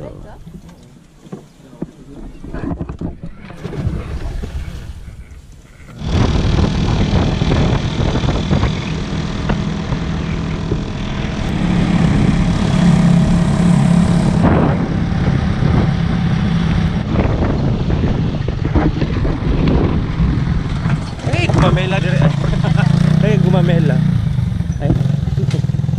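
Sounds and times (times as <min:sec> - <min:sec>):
small engine running: 0:05.9 - 0:17.5.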